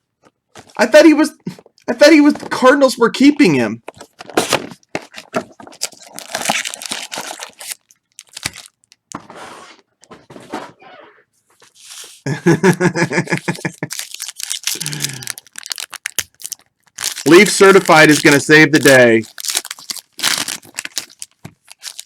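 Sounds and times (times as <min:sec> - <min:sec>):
card pack wrappers tearing: 0:04.1 - 0:09.0, 0:13.2 - 0:22.0.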